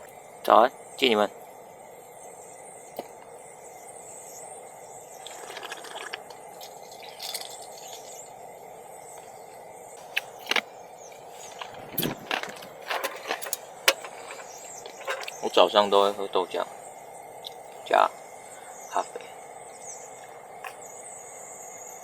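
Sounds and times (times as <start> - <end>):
steady low hiss: 0.0 - 22.0
cups clinking and knocking: 11.6 - 15.4.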